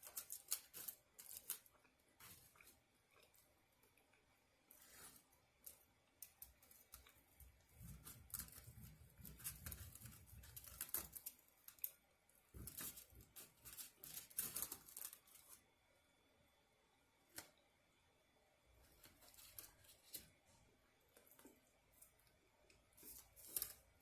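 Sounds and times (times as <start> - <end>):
eating and chewing: 0.0 - 15.6.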